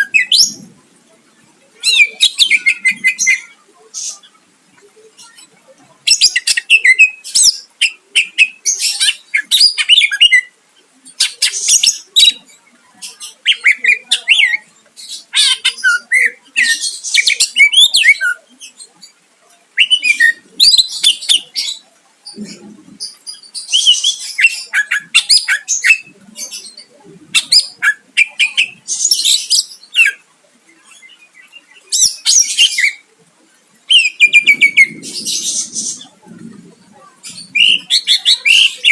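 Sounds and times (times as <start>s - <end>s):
bird singing chattering notes: 33.9s - 36.5s, 37.2s - 38.9s.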